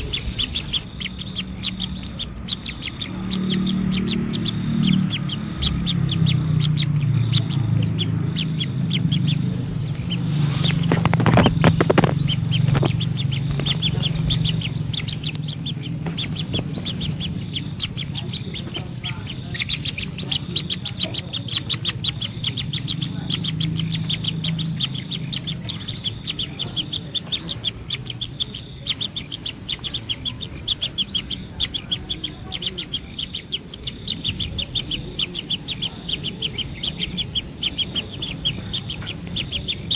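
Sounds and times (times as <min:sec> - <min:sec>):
birds chirping: 0:00.0 - 0:39.9
low steady hum: 0:00.0 - 0:39.9
knocks or rustles: 0:10.3 - 0:14.4.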